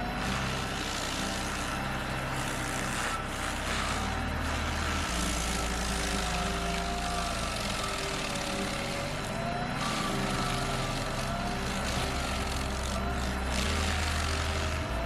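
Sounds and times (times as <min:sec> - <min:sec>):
heavy machine engine running: 0:00.0 - 0:15.0
wavering whine: 0:00.0 - 0:15.0.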